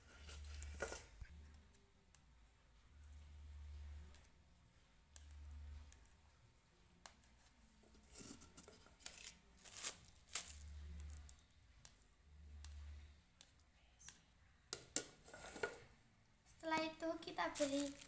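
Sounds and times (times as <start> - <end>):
low hum: 0.0 - 6.9
spoon scraping: 15.2 - 15.8.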